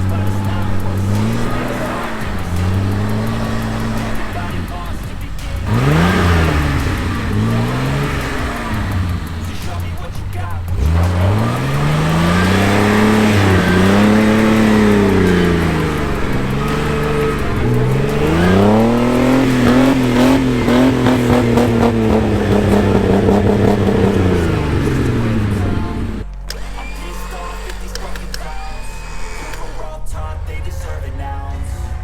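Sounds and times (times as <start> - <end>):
engine revving hard: 0.0 - 29.9.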